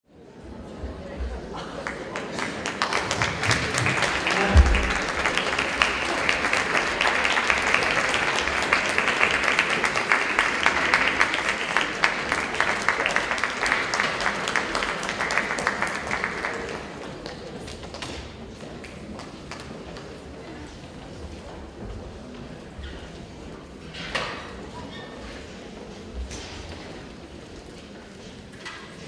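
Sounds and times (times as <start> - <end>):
audience applauding: 1.8 - 18.1
low thump: 4.4 - 5.2.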